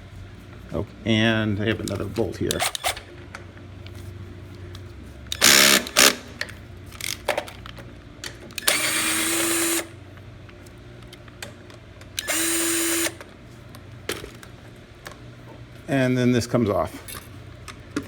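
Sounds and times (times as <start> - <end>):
cordless drill spinning: 5.3 - 6.2, 8.6 - 10.0, 12.2 - 13.2.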